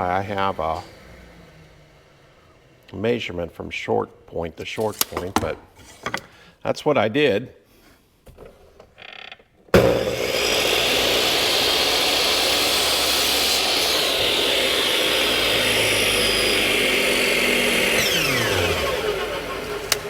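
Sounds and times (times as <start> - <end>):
electric power tool running: 9.8 - 20.0.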